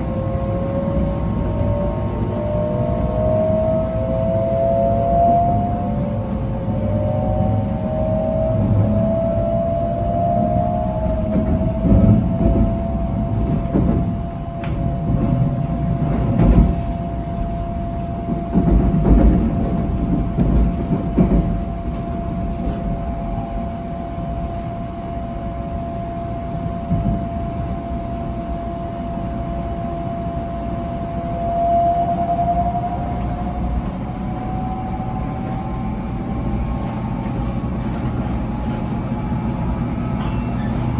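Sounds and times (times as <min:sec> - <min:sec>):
traction motor whine: 0:00.0 - 0:13.7, 0:29.9 - 0:40.9
train rail rumble: 0:00.0 - 0:40.9.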